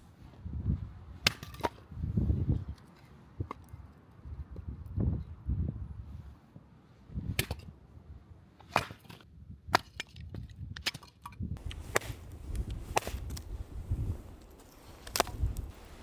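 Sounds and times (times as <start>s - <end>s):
wood splitting knocks and cracks: 11.6s - 16.0s.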